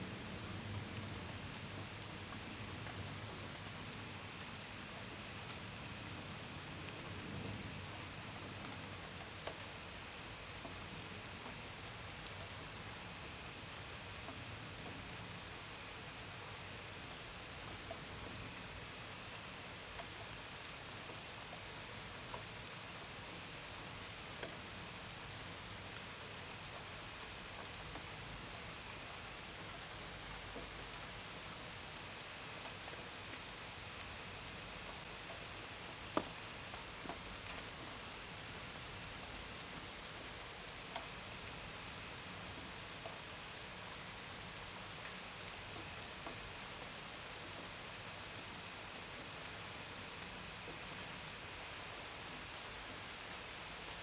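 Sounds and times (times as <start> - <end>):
steady rain: 0.0 - 54.0
crickets chirping: 31.7 - 54.0.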